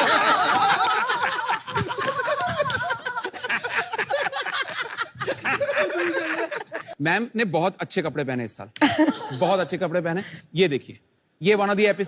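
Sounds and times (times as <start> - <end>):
audience laughing: 0.0 - 7.0.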